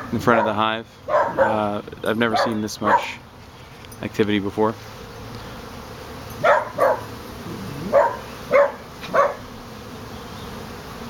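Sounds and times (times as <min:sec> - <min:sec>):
honeybees humming: 0:00.0 - 0:11.0
dog barking: 0:00.4 - 0:01.6, 0:02.3 - 0:03.2, 0:06.4 - 0:07.1, 0:07.9 - 0:09.5.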